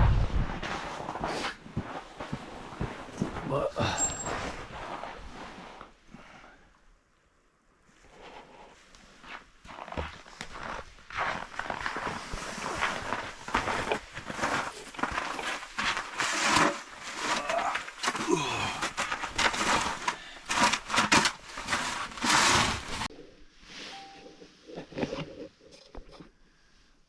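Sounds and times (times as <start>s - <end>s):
crunching and scraping on snow: 8.1s - 25.6s.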